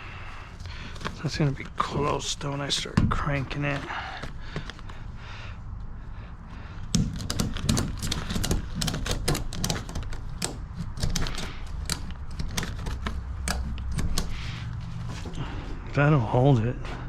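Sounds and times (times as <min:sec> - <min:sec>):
ratchet strap clicking: 0:06.8 - 0:15.4.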